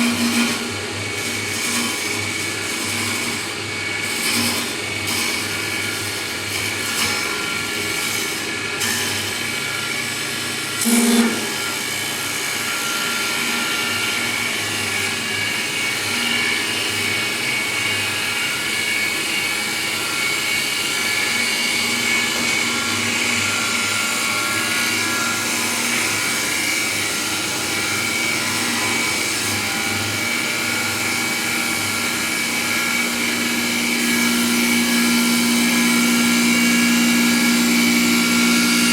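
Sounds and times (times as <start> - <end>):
cutter cutting wood: 0.0 - 38.9
lathe machine whine: 0.0 - 38.9.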